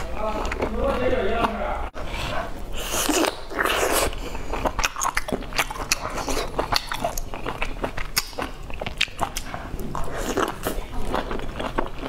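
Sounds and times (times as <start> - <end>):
wet chewing and lip-smacking: 0.0 - 2.0, 2.7 - 12.0.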